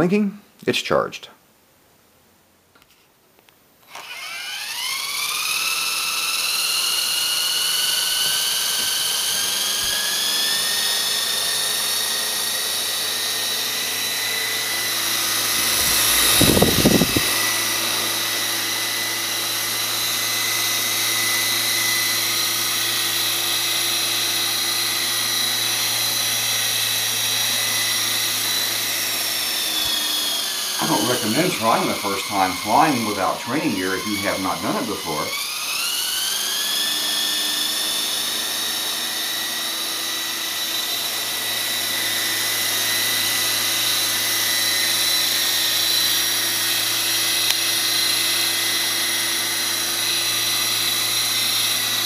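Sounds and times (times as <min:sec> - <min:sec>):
rc helicopter whine: 0:03.8 - 0:52.0
loud rushing burst: 0:15.4 - 0:17.6.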